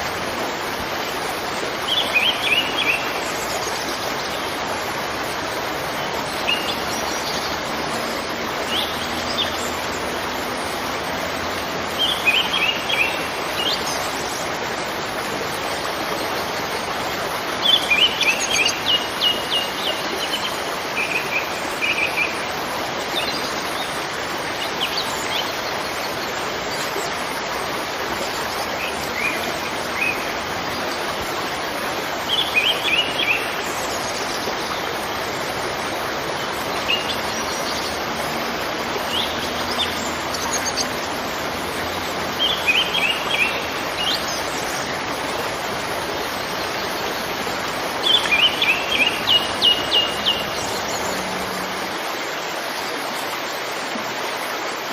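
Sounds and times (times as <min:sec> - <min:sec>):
waterfall rushing: 0:00.0 - 0:54.9
small birds chirping: 0:32.3 - 0:52.0.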